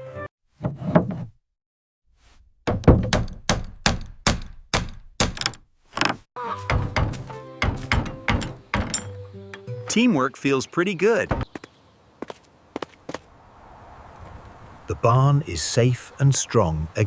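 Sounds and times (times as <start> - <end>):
music: 0.0 - 0.3, 6.5 - 10.4.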